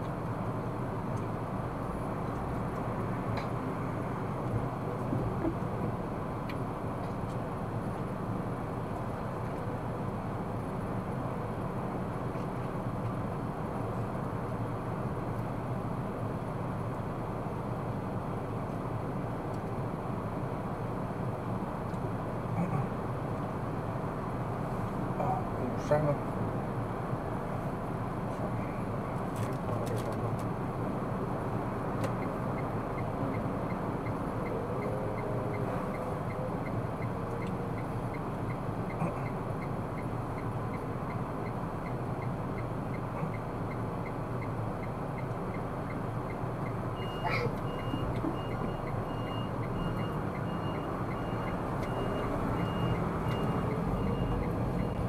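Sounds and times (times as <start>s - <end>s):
road and engine noise in car: 0.0s - 55.0s
turn signal ticking: 31.9s - 55.0s.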